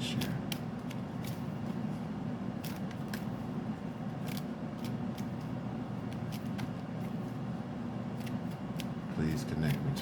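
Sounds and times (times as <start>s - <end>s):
low background hum: 0.0s - 10.0s
cards being shuffled: 4.2s - 7.2s, 8.1s - 9.0s, 9.6s - 10.0s.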